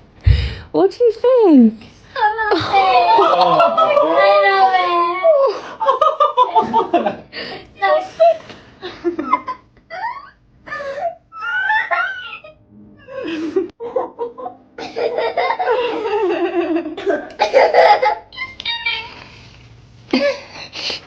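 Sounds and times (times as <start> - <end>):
people laughing: 2.5 - 12.5, 13.1 - 18.2.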